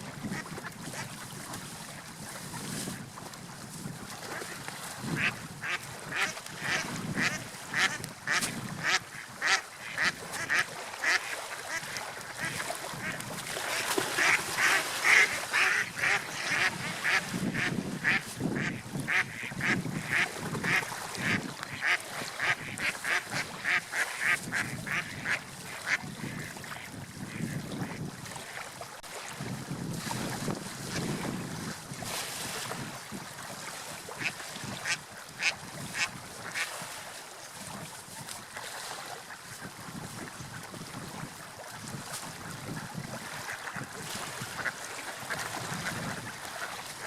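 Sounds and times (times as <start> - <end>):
water: 0.0 - 47.0
wind: 0.0 - 47.0
ducks calling: 5.2 - 26.4.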